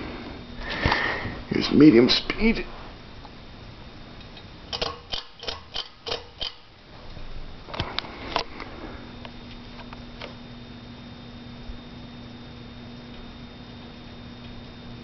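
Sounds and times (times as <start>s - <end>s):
ceiling fan motor hum: 0.0s - 15.0s
ceiling fan clicks: 3.2s - 15.0s.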